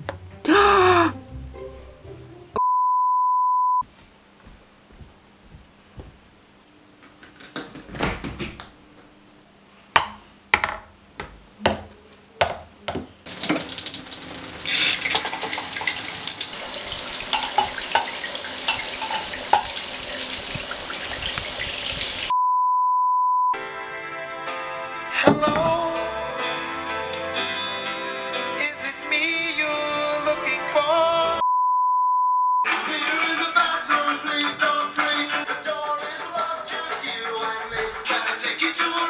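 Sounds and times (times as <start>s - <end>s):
steady beep tone: 2.6s - 3.8s, 22.3s - 23.6s, 31.4s - 32.7s
shower water spray hissing: 13.3s - 22.3s
knocks and clicks: 25.2s - 25.8s.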